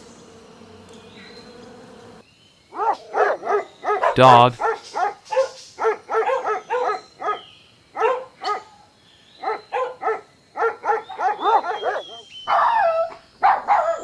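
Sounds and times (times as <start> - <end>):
dog yapping: 2.7 - 8.8, 9.4 - 14.0.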